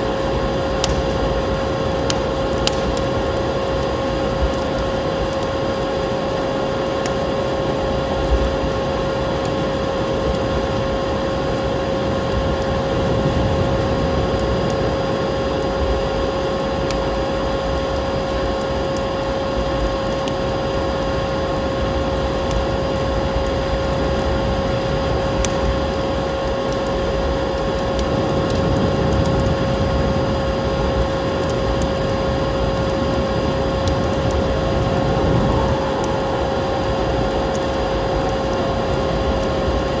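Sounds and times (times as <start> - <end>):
wood fire crackling: 0.0 - 40.0
vacuum cleaner motor whine: 18.7 - 40.0.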